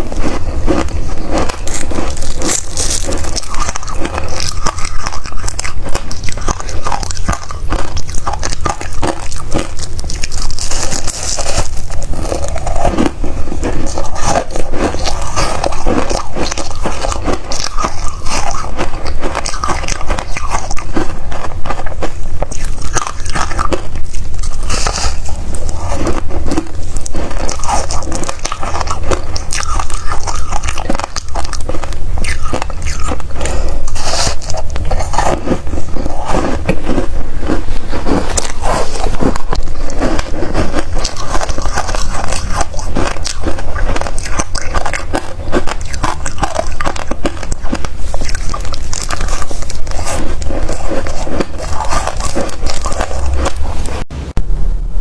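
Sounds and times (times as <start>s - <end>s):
biting and chewing frost: 0.0s - 54.1s
low rumble: 51.5s - 55.0s.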